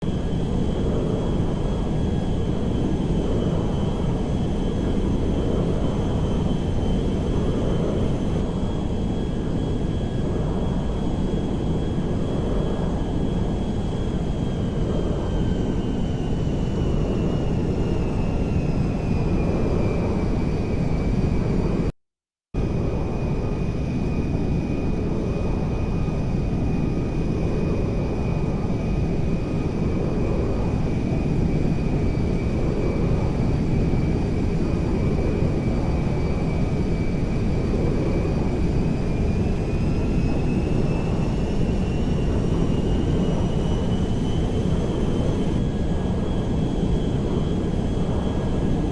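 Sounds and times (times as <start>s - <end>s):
airplane engine rumbling and whining: 0.0s - 21.9s, 22.6s - 48.9s.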